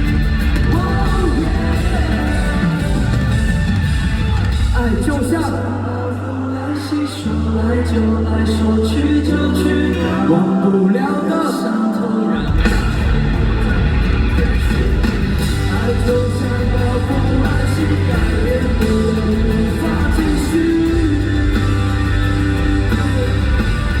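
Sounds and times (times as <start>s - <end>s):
rock band playing: 0.0s - 5.8s, 12.3s - 24.0s.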